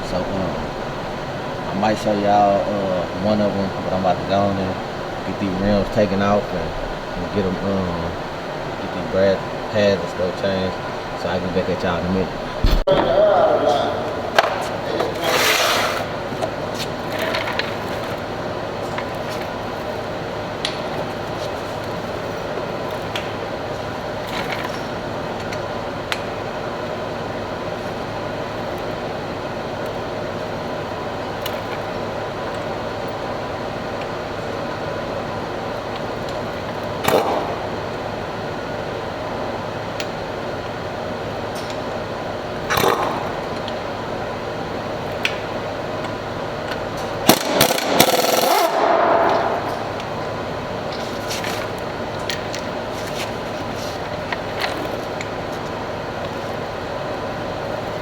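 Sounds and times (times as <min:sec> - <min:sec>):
steady mechanical hum: 0:00.0 - 0:58.0
tool noise bursts: 0:12.3 - 0:16.3, 0:47.0 - 0:50.4.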